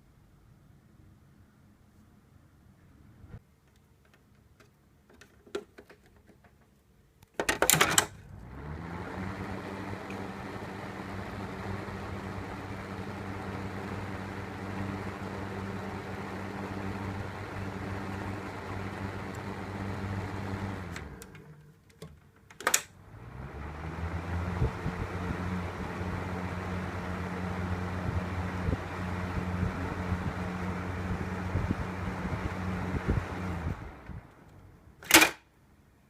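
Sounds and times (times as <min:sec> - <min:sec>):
ventilation fan motor humming: 0:08.0 - 0:22.1, 0:23.0 - 0:34.6.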